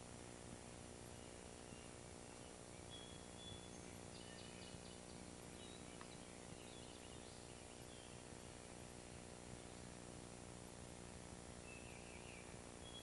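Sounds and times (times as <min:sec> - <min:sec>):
camcorder hiss and hum: 0:00.0 - 0:13.0
faint bird chirps: 0:01.1 - 0:09.9, 0:11.6 - 0:13.0.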